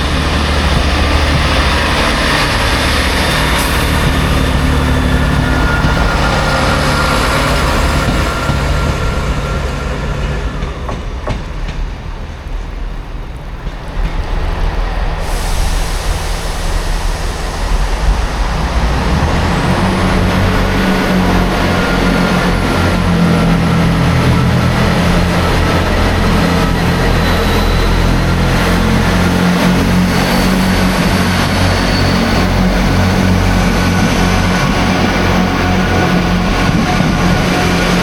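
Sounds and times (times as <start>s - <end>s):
diesel train engine throbbing: 0.0s - 38.0s
steady hiss: 12.2s - 19.2s.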